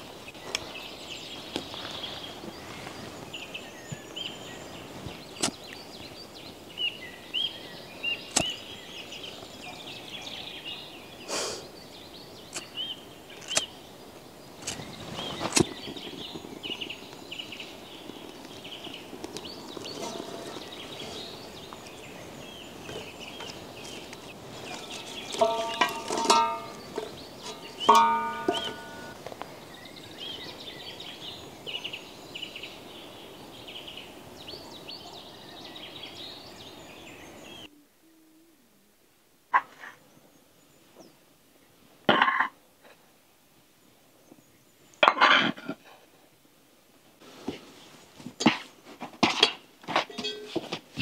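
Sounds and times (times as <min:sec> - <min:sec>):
small birds chirping: 0:00.0 - 0:38.2
sharp knocks: 0:25.3 - 0:29.2.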